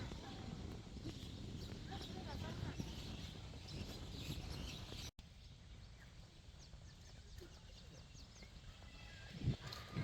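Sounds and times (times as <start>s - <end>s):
birds chirping: 0.1s - 9.3s.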